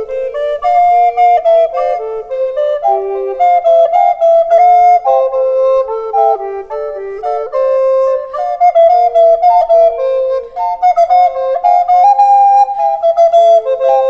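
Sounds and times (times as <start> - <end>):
recorder playing melody: 0.0 - 14.0.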